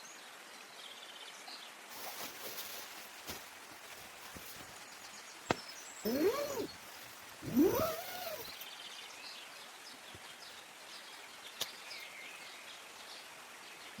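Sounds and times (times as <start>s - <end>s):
faint high bird chirps: 5.5s - 6.8s, 7.4s - 8.8s
animal call rising and falling: 6.1s - 6.7s, 7.4s - 8.6s.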